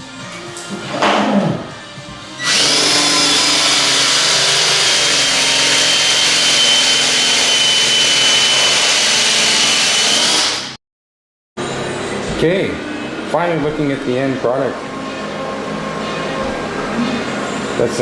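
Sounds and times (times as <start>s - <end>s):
power tool whining: 2.4s - 10.8s.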